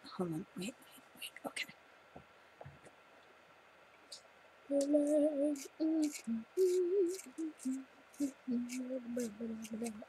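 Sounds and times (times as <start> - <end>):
woman singing: 4.7 - 10.0.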